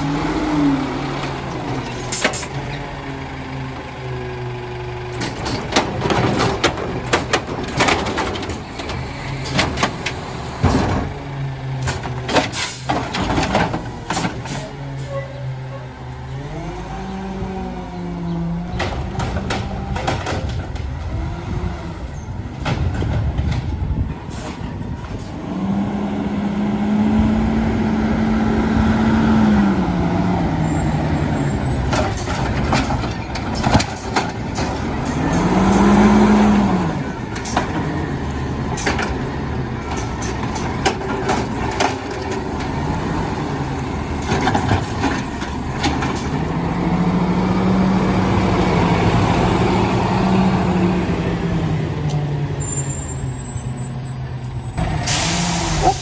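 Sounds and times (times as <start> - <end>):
garbage truck engine revving: 0.0 - 23.5, 24.5 - 56.0
sharp knocks and clanks: 5.2 - 11.2, 18.8 - 21.1, 39.8 - 42.7.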